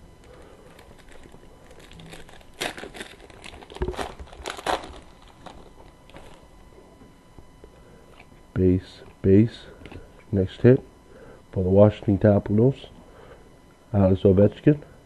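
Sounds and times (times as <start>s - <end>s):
foil wrapper crinkling: 0.2s - 6.5s.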